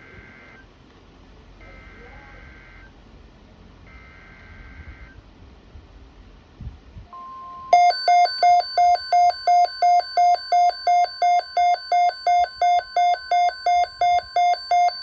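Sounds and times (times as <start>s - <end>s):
radio alarm beeping: 7.7s - 15.0s
steady warning tone: 7.7s - 15.0s.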